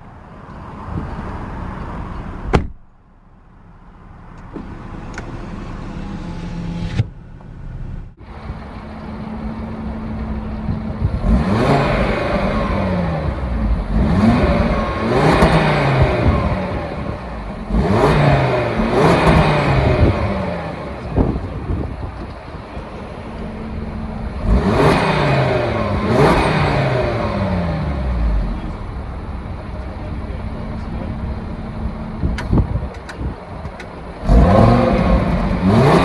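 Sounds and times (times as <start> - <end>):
car engine revving: 4.0 - 32.5, 33.8 - 36.0.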